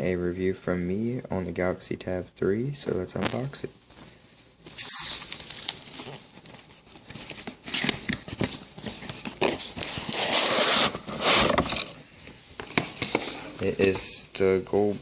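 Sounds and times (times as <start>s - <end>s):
plastic wrap crinkling and tearing: 4.7s - 11.9s
cardboard scraping and rustling: 5.1s - 12.0s.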